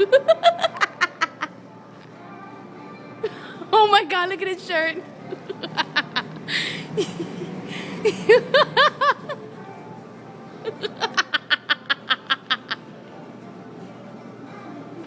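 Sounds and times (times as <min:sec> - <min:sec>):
people laughing hard: 0:00.0 - 0:01.6, 0:05.3 - 0:09.5, 0:10.6 - 0:12.9.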